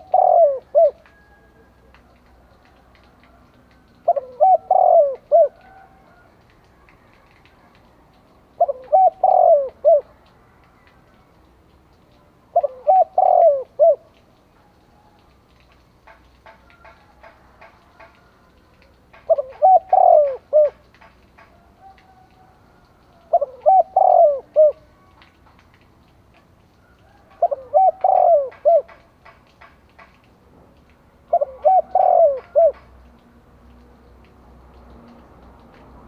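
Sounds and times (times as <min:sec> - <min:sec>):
dove cooing: 0:00.0 - 0:02.2, 0:04.0 - 0:06.3, 0:08.5 - 0:10.9, 0:12.5 - 0:15.2, 0:18.8 - 0:25.2, 0:26.9 - 0:29.1, 0:31.3 - 0:32.9.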